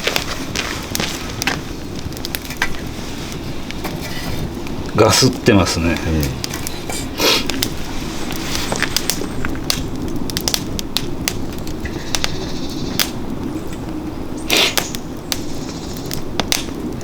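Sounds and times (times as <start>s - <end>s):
logs crackling and popping: 0.0s - 17.0s
low rush of flame: 0.0s - 17.0s.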